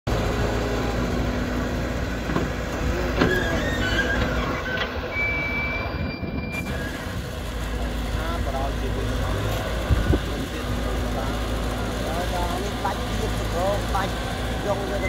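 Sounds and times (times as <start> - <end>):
excavator engine rumble: 0.1 - 15.0
high squeals: 3.2 - 7.4.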